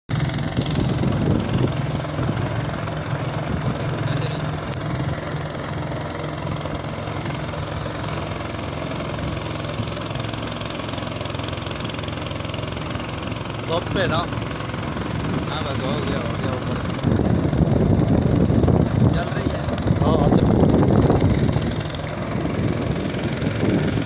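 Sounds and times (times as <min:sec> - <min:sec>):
engine humming: 0:00.1 - 0:24.0.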